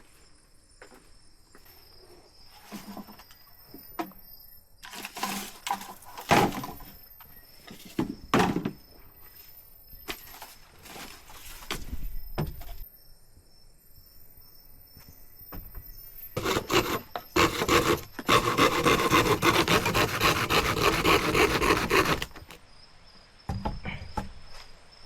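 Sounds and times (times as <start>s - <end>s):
insects chirping: 0.0s - 25.0s
knocks and thuds: 23.5s - 24.4s.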